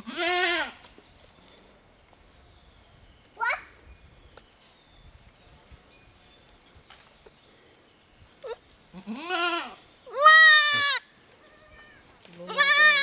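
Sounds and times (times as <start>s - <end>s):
goat bleating: 0.0s - 0.8s, 9.0s - 13.0s.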